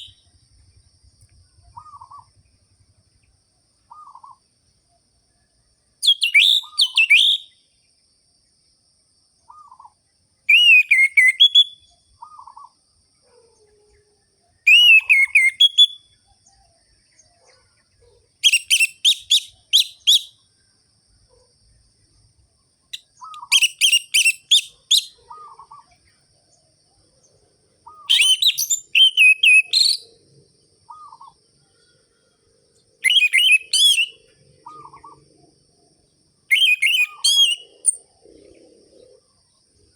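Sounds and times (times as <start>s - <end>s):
thrush singing whistled phrases: 0.0s - 0.2s, 6.0s - 7.6s, 10.5s - 11.9s, 14.7s - 16.1s, 18.4s - 20.4s, 22.9s - 25.2s, 28.0s - 30.1s, 33.0s - 34.2s, 36.5s - 38.0s.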